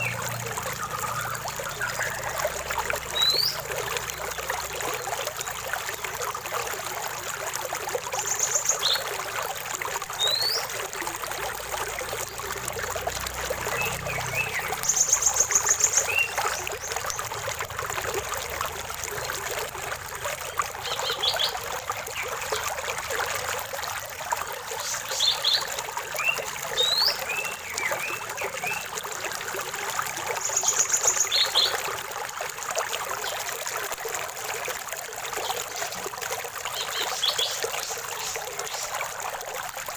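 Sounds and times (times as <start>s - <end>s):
birds singing: 0.0s - 4.6s, 10.2s - 10.7s, 13.5s - 17.3s, 20.5s - 22.6s, 24.8s - 28.9s, 30.4s - 31.8s, 36.7s - 38.9s
water trickling in a stream: 0.0s - 39.9s.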